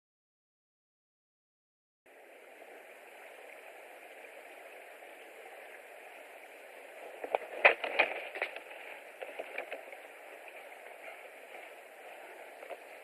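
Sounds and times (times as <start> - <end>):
steady outdoor hiss: 2.1 - 13.0
sharp crackles and knocks: 7.0 - 13.0.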